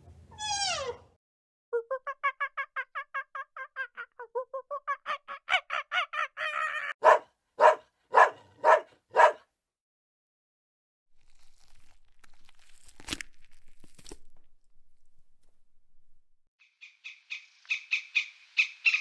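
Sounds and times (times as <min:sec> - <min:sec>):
animal calls: 0:00.4 - 0:01.1.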